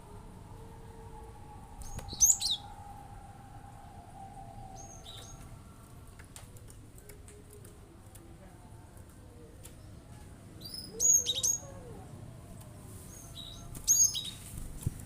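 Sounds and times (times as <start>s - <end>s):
bird chirps: 1.8s - 2.8s, 4.7s - 5.5s, 10.6s - 11.7s, 13.1s - 14.5s.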